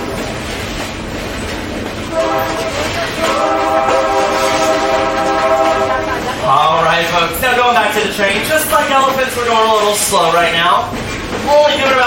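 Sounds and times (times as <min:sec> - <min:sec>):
slow-moving train: 0:00.0 - 0:12.0
locomotive air horn: 0:02.1 - 0:06.4.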